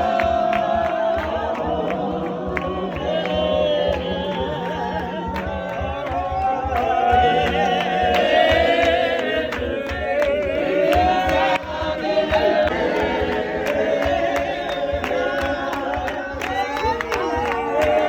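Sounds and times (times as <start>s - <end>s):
voices singing over a beat: 0.0s - 18.0s.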